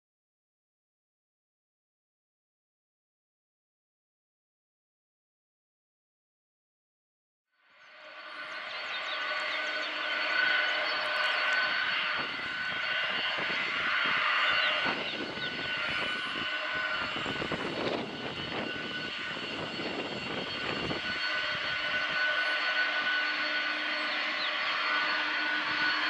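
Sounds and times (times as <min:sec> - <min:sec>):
jet engines whining: 0:07.9 - 0:26.0
wind rumble on microphone: 0:11.9 - 0:22.3.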